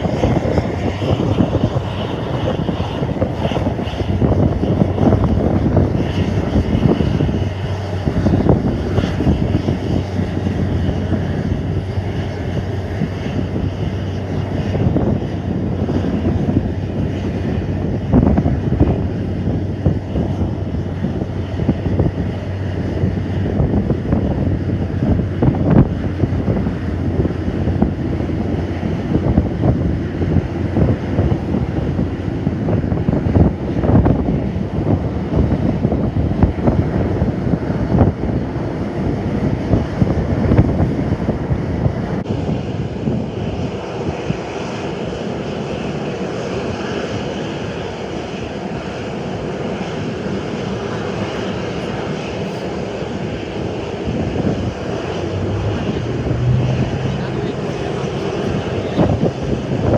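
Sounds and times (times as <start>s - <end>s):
jet airliner engines: 0.0s - 59.9s
wind buffeting microphone: 0.0s - 59.9s.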